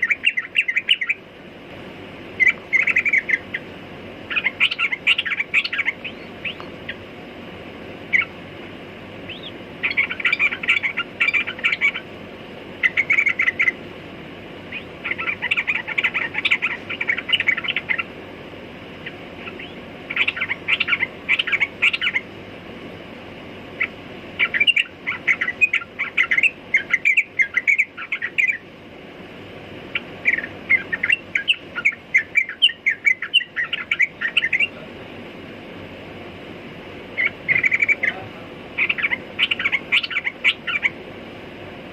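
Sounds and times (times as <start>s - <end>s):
bird chattering song: 0.0s - 1.3s, 2.3s - 7.1s, 8.1s - 8.4s, 9.2s - 13.8s, 14.6s - 18.2s, 19.0s - 22.4s, 23.7s - 28.7s, 29.8s - 34.9s, 37.1s - 41.0s.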